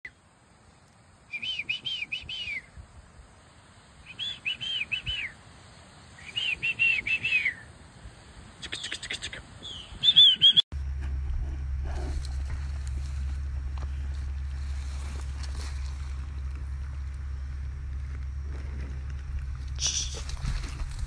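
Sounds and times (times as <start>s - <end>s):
songbird singing whistled notes: 1.3s - 2.7s, 4.0s - 5.4s, 6.2s - 7.7s, 8.6s - 10.6s.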